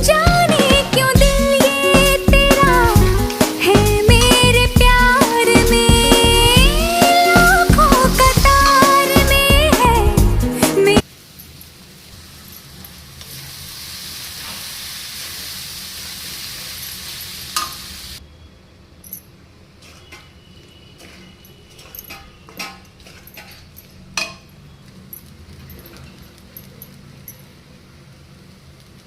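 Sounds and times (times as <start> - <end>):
food sizzling in a pan: 11.0 - 18.2
utensil clinking while stirring: 21.0 - 27.6.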